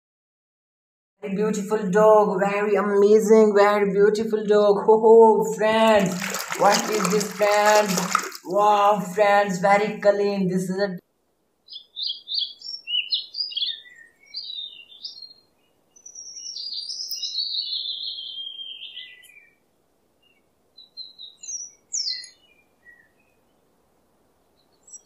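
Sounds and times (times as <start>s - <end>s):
songbirds chirping and warbling: 11.6s - 25.0s.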